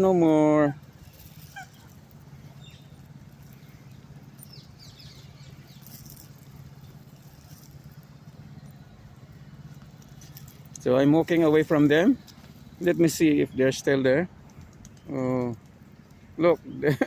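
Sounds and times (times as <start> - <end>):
steady low hum: 0.0 - 17.0
faint bird chirps: 0.4 - 17.0
short falling bird calls: 0.5 - 10.5.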